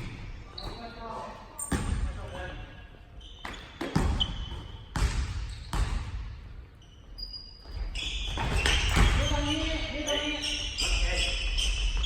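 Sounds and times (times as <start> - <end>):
court noise: 0.0 - 6.4
basketball bouncing on gym floor: 1.6 - 2.5, 3.4 - 6.5, 7.6 - 9.8.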